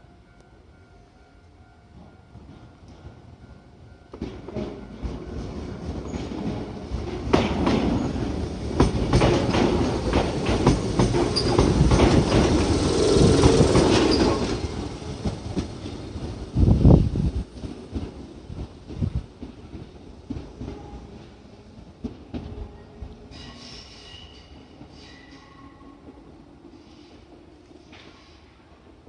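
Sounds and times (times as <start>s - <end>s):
train wheels clacking on rails: 1.9s - 22.6s.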